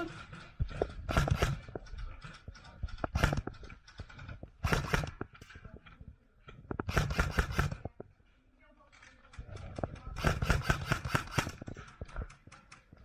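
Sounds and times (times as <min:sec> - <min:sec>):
airsoft guns firing: 0:00.0 - 0:01.8, 0:02.8 - 0:05.4, 0:06.8 - 0:07.9, 0:09.6 - 0:12.4.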